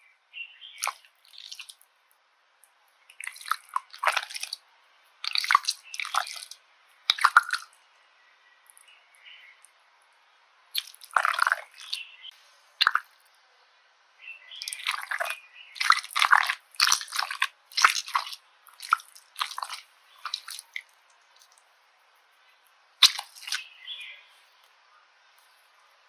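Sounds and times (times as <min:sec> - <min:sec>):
slime squishing and crackling: 0:00.8 - 0:01.8, 0:03.1 - 0:04.6, 0:05.2 - 0:07.7, 0:10.8 - 0:12.0, 0:12.8 - 0:13.0, 0:14.6 - 0:21.6, 0:23.0 - 0:23.7.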